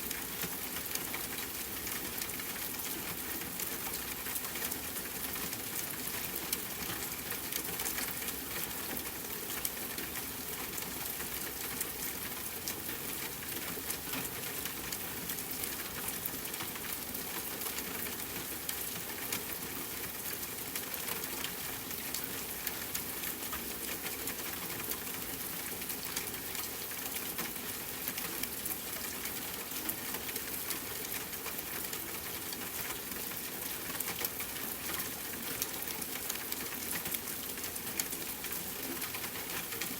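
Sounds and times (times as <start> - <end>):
rain falling on a tent: 0.0 - 39.9.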